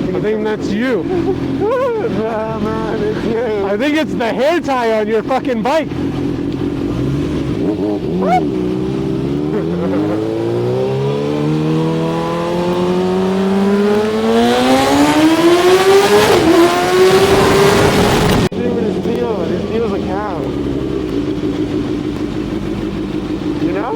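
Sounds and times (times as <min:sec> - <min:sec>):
motorcycle engine accelerating: 0:05.8 - 0:23.9.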